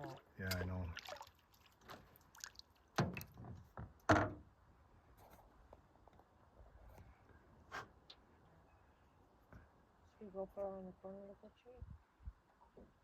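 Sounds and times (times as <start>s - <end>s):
paddle splashing strokes: 0.0s - 3.2s
faint water sounds: 0.0s - 4.1s.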